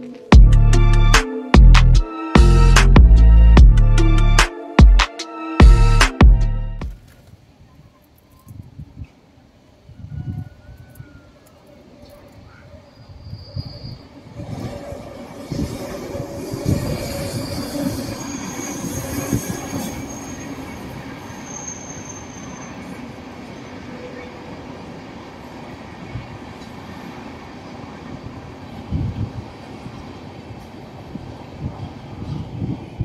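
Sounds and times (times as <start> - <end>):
low thumps: 1.6 - 4.0
high wheel squeal: 12.9 - 24.3
train wheels rumbling on rail: 14.0 - 33.0.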